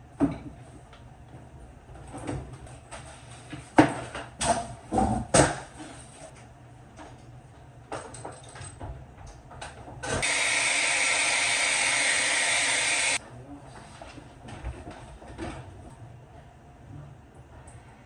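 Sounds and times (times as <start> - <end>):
pressurised gas hissing: 10.2 - 13.2.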